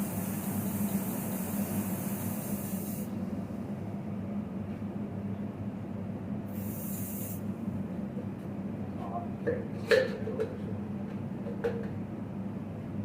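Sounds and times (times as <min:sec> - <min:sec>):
aerosol spray can hissing: 0:00.0 - 0:03.1, 0:06.6 - 0:07.4
steady low hum: 0:00.0 - 0:13.0.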